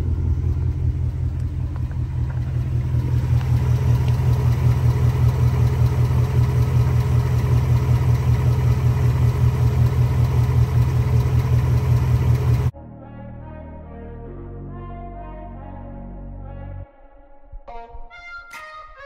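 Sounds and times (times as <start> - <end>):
car engine idling: 0.0 - 12.7
fast engine ticking: 0.0 - 12.7.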